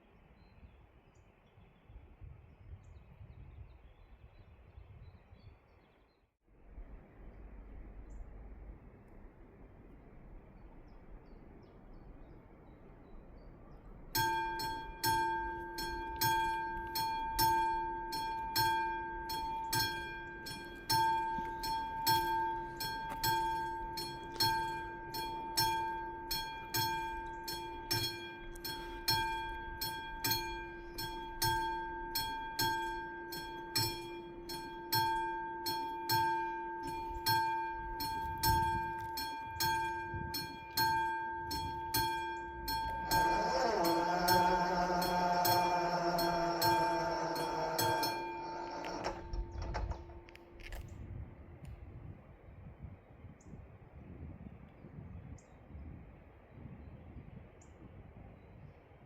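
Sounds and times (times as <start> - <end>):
level crossing bells ringing: 14.2 - 50.7.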